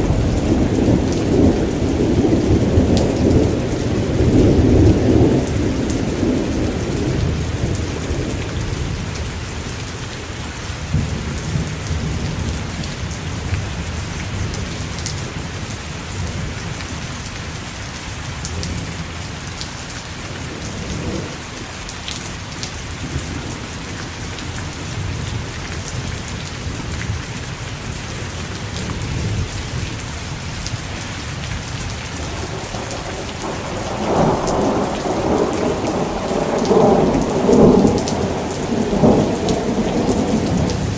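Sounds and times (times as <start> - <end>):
distant thunder rumbling: 0.0 - 8.8, 20.4 - 21.4, 31.8 - 40.9
steady rain: 0.0 - 40.9.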